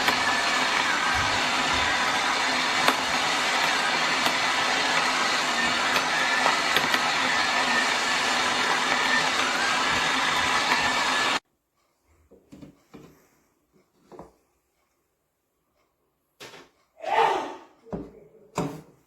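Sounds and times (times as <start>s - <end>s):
electric coffee grinder running: 0.0s - 11.4s.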